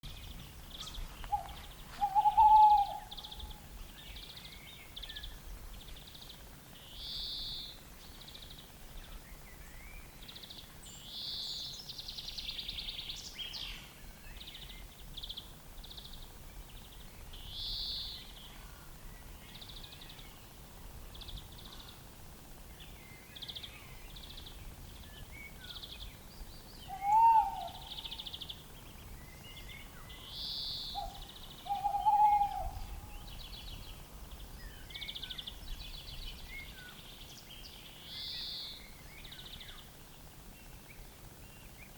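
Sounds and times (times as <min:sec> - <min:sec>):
small birds singing: 0:00.0 - 0:41.9
owl hooting: 0:00.8 - 0:03.6, 0:26.9 - 0:28.3, 0:30.9 - 0:33.2.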